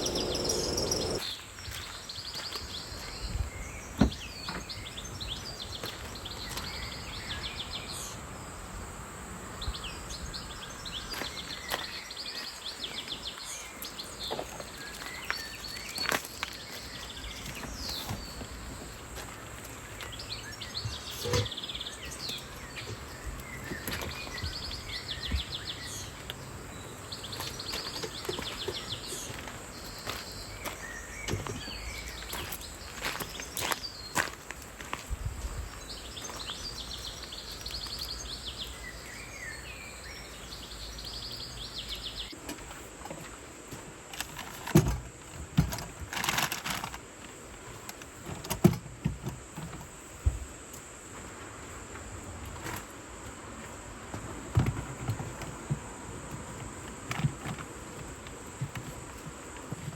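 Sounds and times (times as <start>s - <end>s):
small birds trilling: 0.0s - 8.5s, 9.6s - 34.4s, 35.6s - 42.9s.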